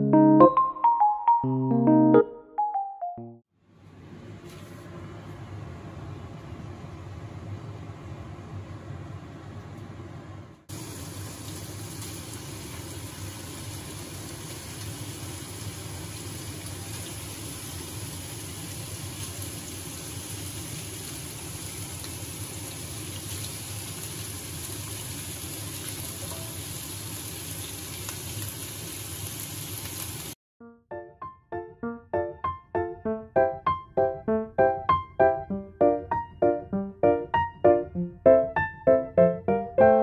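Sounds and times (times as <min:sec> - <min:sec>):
meat and onion sizzling in oil: 0:10.7 - 0:30.4.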